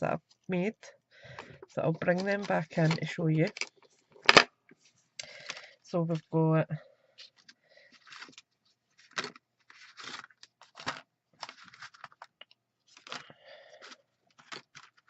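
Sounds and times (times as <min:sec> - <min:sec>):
cards scraping on a table: 0:07.2 - 0:08.4, 0:09.0 - 0:12.2.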